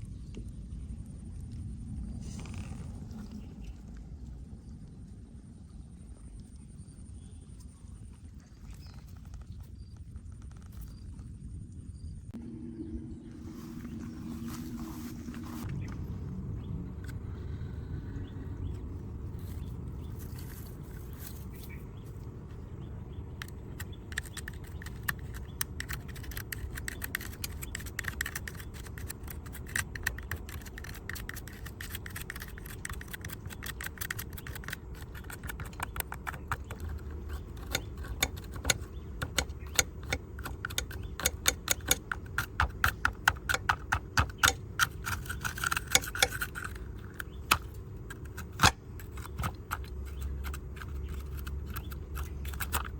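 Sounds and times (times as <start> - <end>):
steady low hum: 0.0 - 52.9
small tools clicking and scraping: 23.3 - 52.9.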